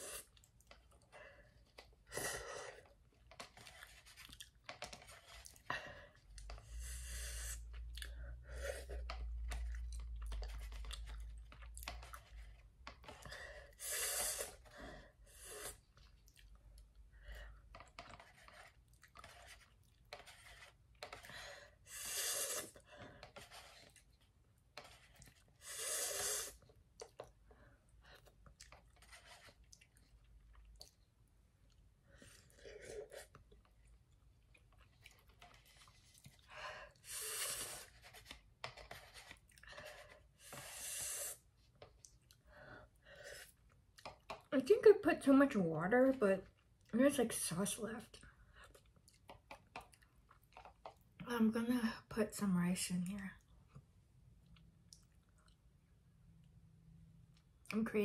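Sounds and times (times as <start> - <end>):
quiet chewing: 0.2 - 6.8, 7.7 - 13.3, 15.5 - 21.8, 22.5 - 40.8, 41.6 - 44.5, 48.2 - 51.2, 53.4 - 56.6
slurping noodles: 6.4 - 16.3, 18.1 - 24.1, 24.9 - 27.3, 34.8 - 38.3, 39.3 - 41.5.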